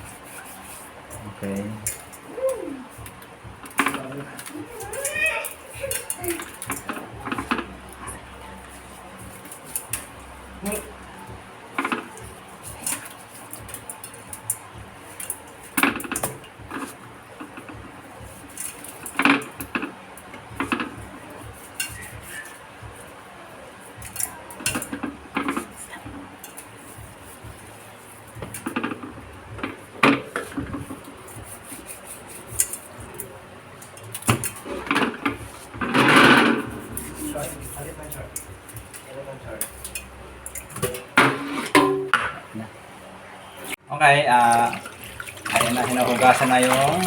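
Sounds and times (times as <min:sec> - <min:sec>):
dishes and utensils clinking: 0:20.6 - 0:22.6, 0:28.4 - 0:42.4.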